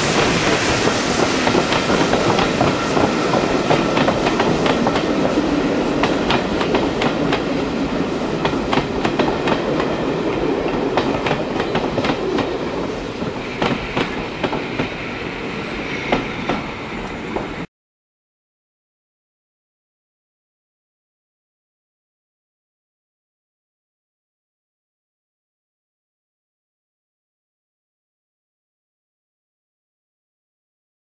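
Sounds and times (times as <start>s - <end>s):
train wheels clicking over rail joints: 0.0s - 7.6s, 8.4s - 15.0s
railway carriages rumbling: 0.0s - 17.7s.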